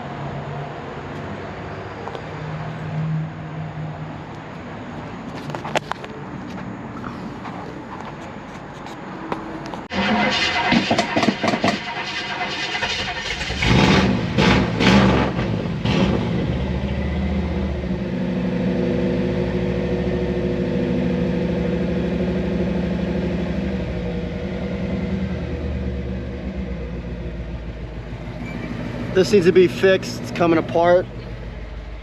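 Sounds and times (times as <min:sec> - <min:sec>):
car engine revving and idling: 0:09.8 - 0:32.0.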